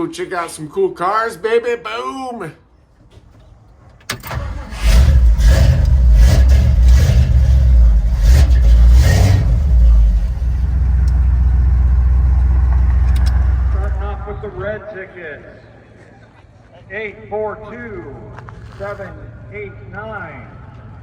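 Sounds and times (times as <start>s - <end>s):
car engine starting and revving: 4.1s - 14.4s.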